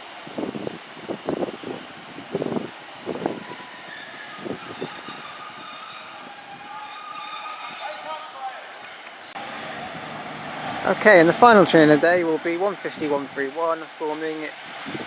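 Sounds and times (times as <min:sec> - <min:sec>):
wheels squealing on rails: 0:01.0 - 0:13.3
diesel train moving: 0:02.0 - 0:15.0.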